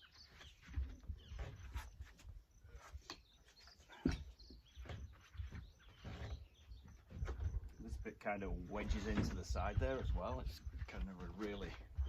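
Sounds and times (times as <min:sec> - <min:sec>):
wooden panels knocking and creaking: 0:03.0 - 0:12.0.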